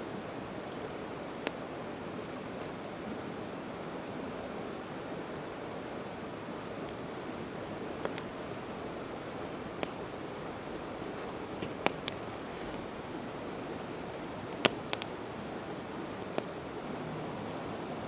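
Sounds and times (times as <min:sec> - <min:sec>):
river rushing: 0:07.4 - 0:15.0
cricket chirping: 0:07.6 - 0:15.0
campfire crackling and popping: 0:07.6 - 0:15.2.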